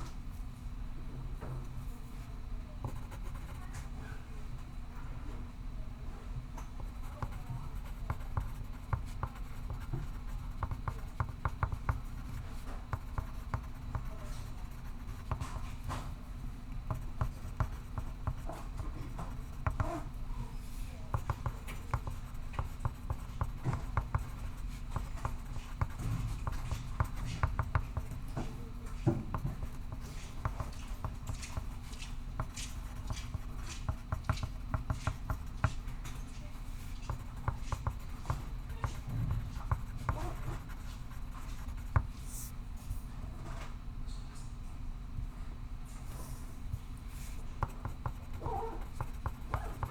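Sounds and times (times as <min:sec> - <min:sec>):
low room hum: 0:00.0 - 0:49.9
pencil scratching on paper: 0:02.9 - 0:03.8, 0:06.8 - 0:16.2, 0:16.8 - 0:20.2, 0:21.0 - 0:42.5, 0:47.1 - 0:49.9.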